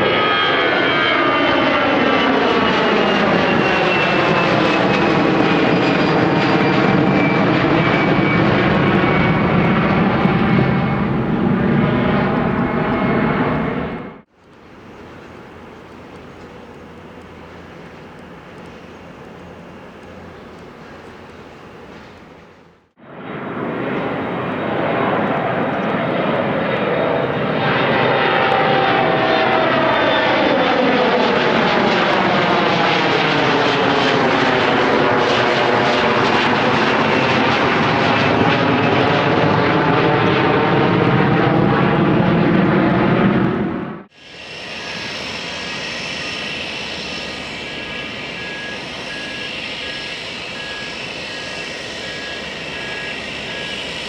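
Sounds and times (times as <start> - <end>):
jet airliner flying overhead: 0.0 - 54.0
high-pitched whining tones: 44.2 - 54.0.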